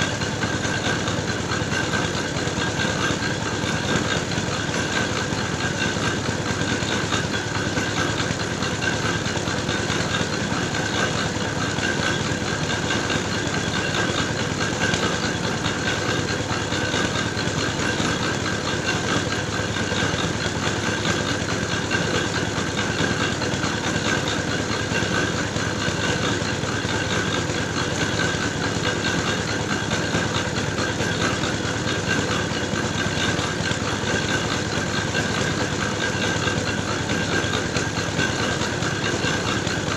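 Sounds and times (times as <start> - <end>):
engine-driven grinding mill running: 0.0 - 39.9.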